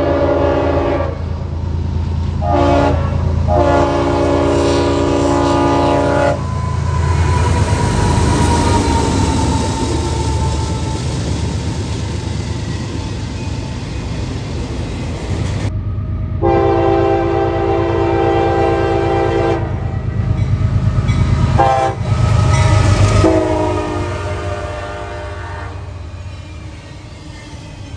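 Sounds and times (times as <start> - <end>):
locomotive horn blasts: 0.0 - 1.3, 2.4 - 11.6, 16.4 - 20.1, 21.6 - 26.1
rumble of rolling train: 0.0 - 27.9.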